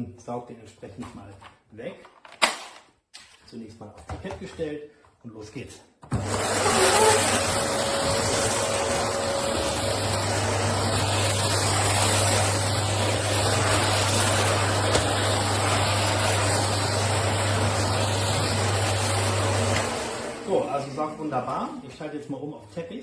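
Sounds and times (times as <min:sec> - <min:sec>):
vacuum cleaner running: 0:06.1 - 0:21.9.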